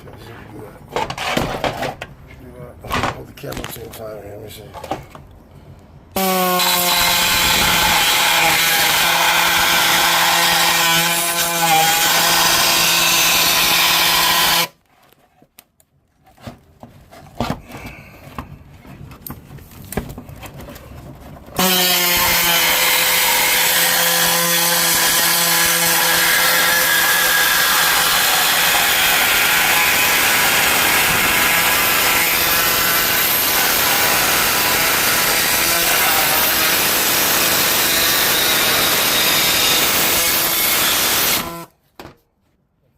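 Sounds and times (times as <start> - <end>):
power tool cutting sheet metal: 6.2 - 14.8, 21.6 - 41.7.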